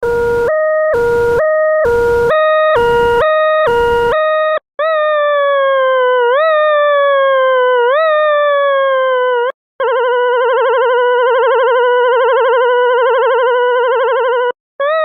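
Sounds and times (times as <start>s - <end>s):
electronic siren: 0.0s - 15.0s.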